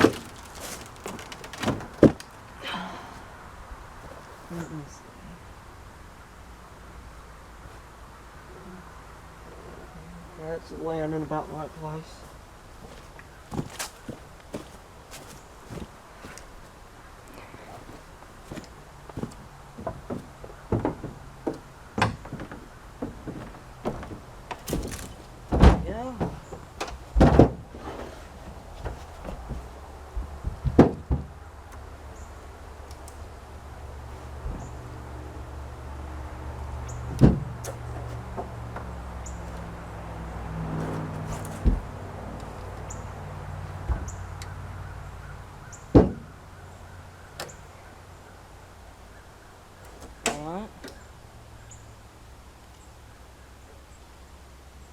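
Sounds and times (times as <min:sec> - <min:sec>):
knocks and clunks on metal: 0:00.0 - 0:02.8, 0:12.8 - 0:16.5, 0:17.7 - 0:31.8, 0:36.9 - 0:39.7, 0:40.3 - 0:43.0, 0:43.7 - 0:44.4, 0:45.7 - 0:46.4.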